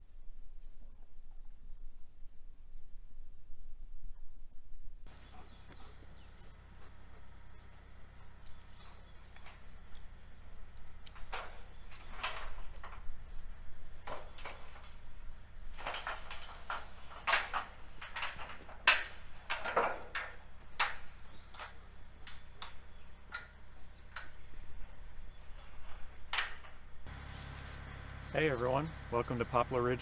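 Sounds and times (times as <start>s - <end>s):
faint low hum: 0.0s - 17.4s.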